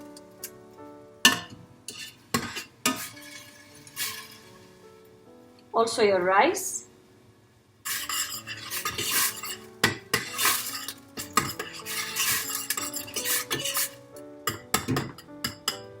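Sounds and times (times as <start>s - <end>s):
utensil scraping metal pot: 1.3s - 4.7s, 7.9s - 14.6s.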